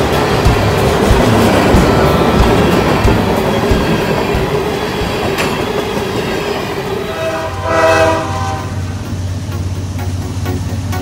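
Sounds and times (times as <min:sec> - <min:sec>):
wheels clicking over rail joints: 0:00.0 - 0:07.0.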